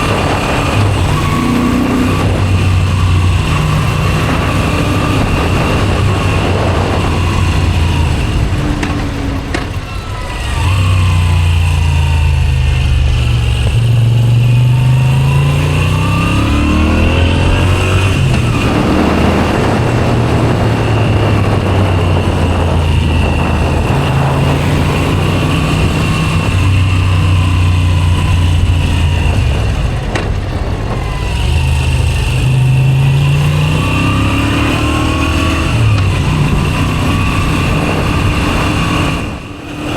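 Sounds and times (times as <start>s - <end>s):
motorcycle accelerating through gears: 0.0s - 39.9s.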